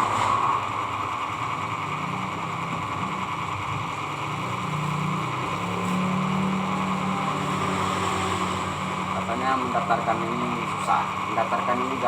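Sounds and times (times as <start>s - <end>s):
small motor humming: 0.0s - 12.0s.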